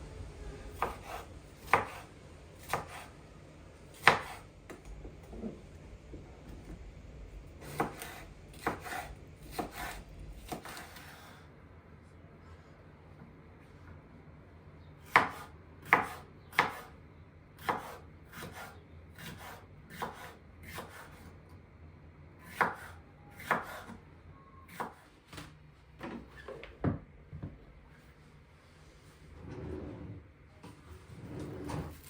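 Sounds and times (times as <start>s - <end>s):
knife chopping on cutting board: 0.8s - 2.0s, 2.6s - 3.1s, 4.0s - 4.8s, 7.6s - 11.3s, 15.1s - 16.9s, 17.6s - 21.3s, 22.4s - 24.0s.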